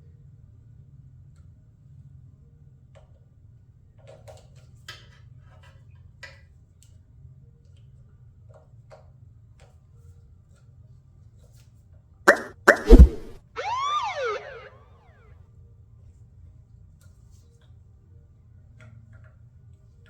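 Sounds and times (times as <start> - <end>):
low hum: 12.7 - 14.8.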